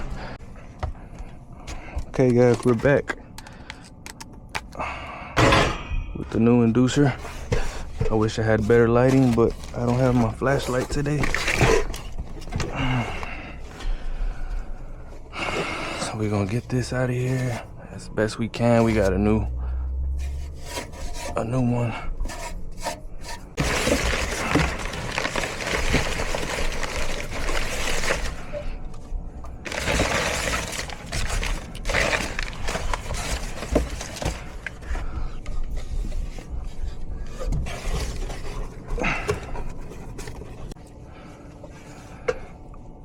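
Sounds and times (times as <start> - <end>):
metal scraping and rubbing: 20.1 - 24.9.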